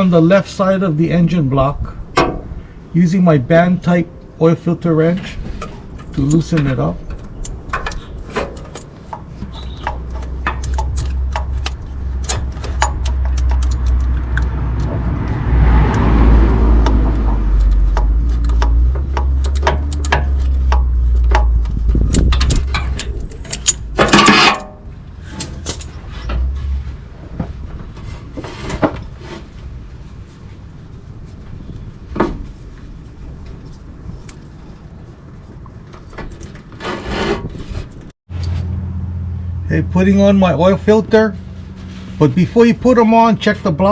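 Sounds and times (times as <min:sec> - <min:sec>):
low rumble: 0:05.3 - 0:28.4
metallic clicks and knocks: 0:05.6 - 0:15.3, 0:16.8 - 0:26.6.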